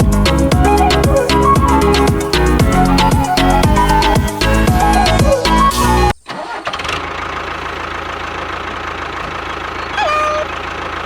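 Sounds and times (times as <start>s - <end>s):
music: 0.0s - 6.1s
engine humming: 0.0s - 11.0s.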